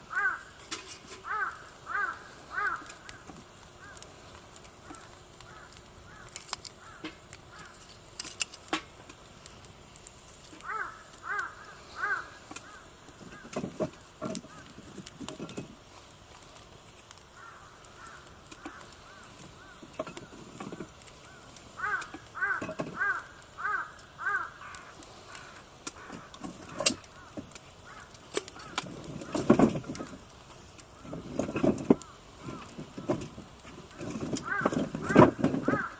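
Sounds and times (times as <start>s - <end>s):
crow cawing: 0.1s - 4.1s, 4.8s - 7.9s, 10.6s - 13.6s, 14.3s - 14.9s, 17.3s - 30.2s, 30.9s - 35.9s.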